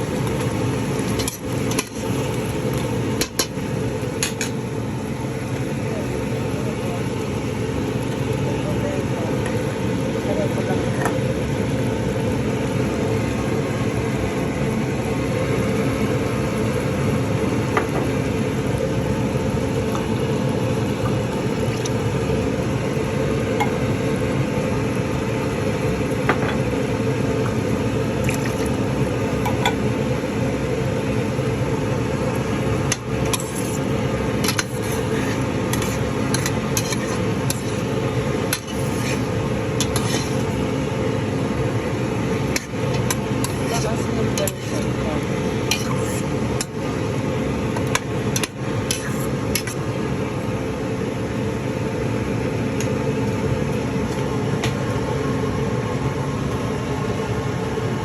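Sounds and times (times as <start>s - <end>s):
food sizzling in a pan: 0.0s - 50.0s
utensil clicking against pan: 34.4s - 35.0s.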